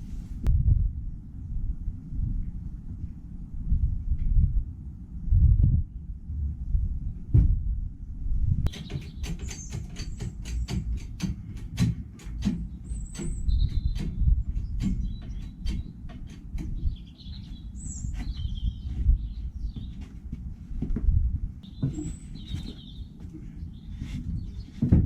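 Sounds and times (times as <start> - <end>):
low rumble: 0.0 - 8.7
small birds chirping: 8.7 - 20.3, 21.6 - 25.0.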